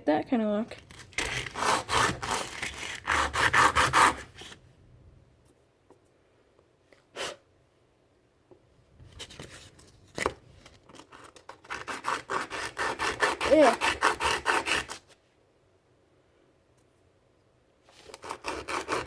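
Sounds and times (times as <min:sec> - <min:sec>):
sandpaper scraping: 0:01.2 - 0:04.6, 0:11.6 - 0:15.1, 0:17.9 - 0:19.0.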